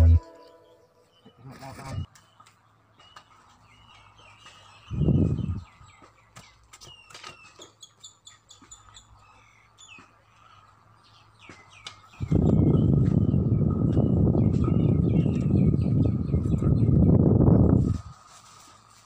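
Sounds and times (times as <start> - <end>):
small birds chirping: 0.0 - 18.0
wind buffeting microphone: 4.9 - 5.7, 12.1 - 18.1.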